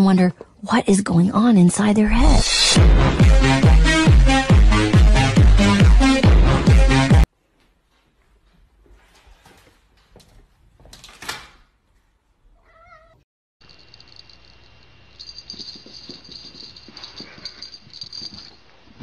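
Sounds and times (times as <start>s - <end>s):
cat meowing: 12.6s - 13.2s.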